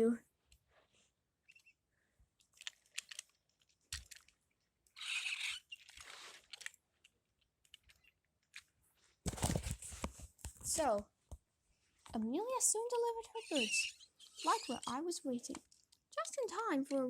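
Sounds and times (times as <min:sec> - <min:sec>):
plastic toy trains clicking: 0:02.5 - 0:04.4, 0:05.0 - 0:06.8, 0:13.2 - 0:17.0.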